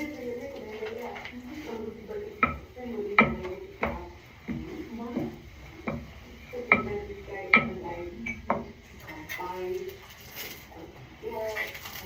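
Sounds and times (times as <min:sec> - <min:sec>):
metal utensil knocking on cookware: 0:02.4 - 0:08.8.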